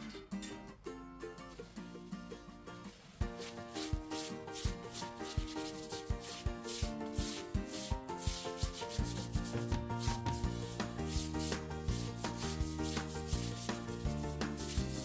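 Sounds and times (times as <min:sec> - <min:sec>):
plucked guitar-like notes: 0:00.0 - 0:03.1.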